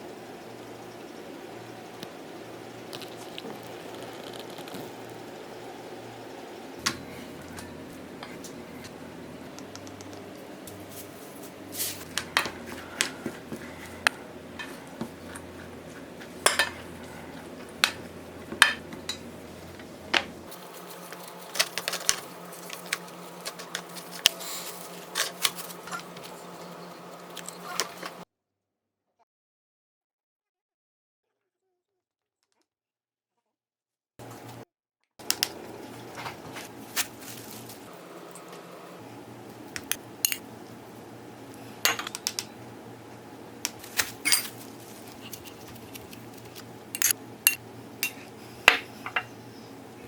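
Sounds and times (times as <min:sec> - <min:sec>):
utensils clinking against dishes: 0:11.8 - 0:26.2, 0:39.8 - 0:40.5, 0:44.2 - 0:45.6, 0:46.9 - 0:49.3.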